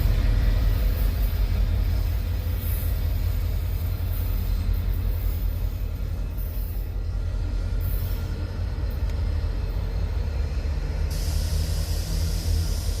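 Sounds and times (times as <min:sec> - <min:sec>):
passenger train rumbling past: 0:00.0 - 0:13.0.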